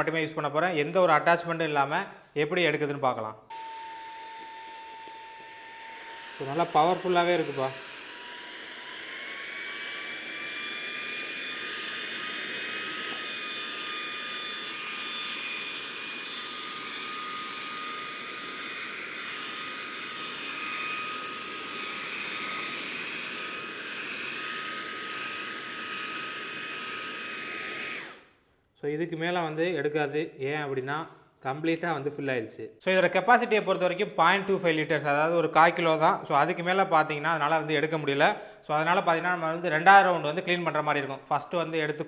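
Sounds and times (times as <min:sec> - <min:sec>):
handheld vacuum cleaner whining: 0:03.5 - 0:28.3.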